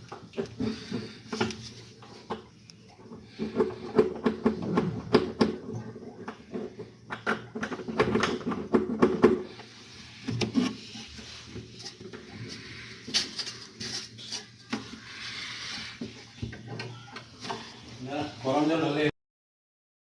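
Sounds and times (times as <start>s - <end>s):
hard objects knocking and clattering: 0.0s - 15.2s.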